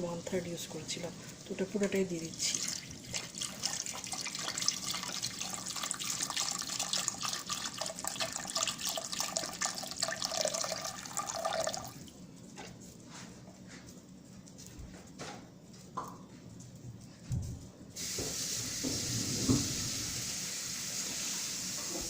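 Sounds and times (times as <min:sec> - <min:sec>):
liquid pouring into a pot: 0:02.3 - 0:12.1.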